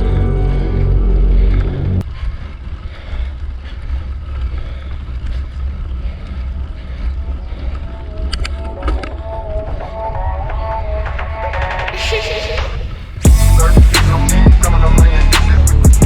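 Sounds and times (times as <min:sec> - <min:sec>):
background music: 0:00.0 - 0:02.0, 0:08.0 - 0:16.0
mountain bike rolling: 0:02.0 - 0:10.6.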